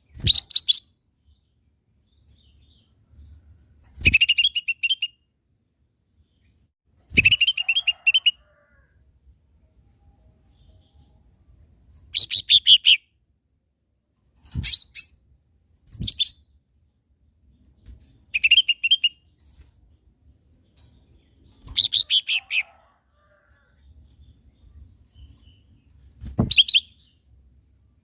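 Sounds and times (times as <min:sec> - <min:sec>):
bird chirping rapidly: 0:18.3 - 0:19.3, 0:21.6 - 0:22.7, 0:25.2 - 0:27.2.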